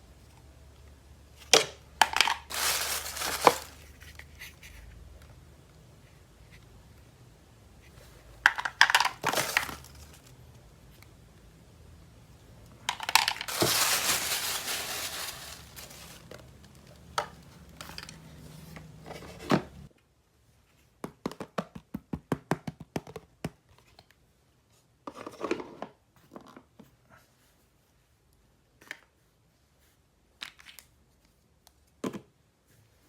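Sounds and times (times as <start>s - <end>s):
packaging tearing and crinkling: 2.2s - 4.1s, 8.9s - 10.3s, 13.0s - 16.5s.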